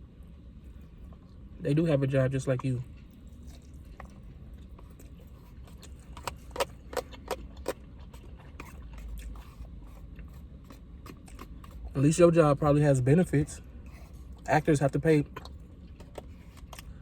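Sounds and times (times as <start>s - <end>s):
quiet chewing of food: 0.6s - 1.6s, 2.6s - 12.1s, 13.5s - 14.5s, 15.2s - 17.0s.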